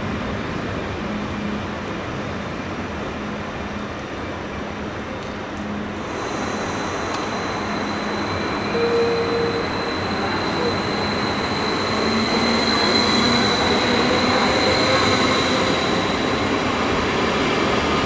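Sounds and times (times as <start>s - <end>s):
train rumbling past: 0.0s - 18.0s
thin high whine: 6.0s - 16.6s.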